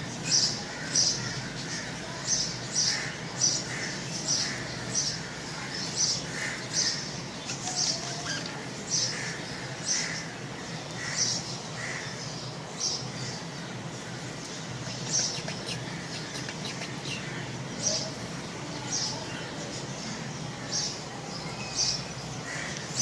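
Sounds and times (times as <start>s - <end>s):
budgerigars chirping: 2.8s - 10.2s.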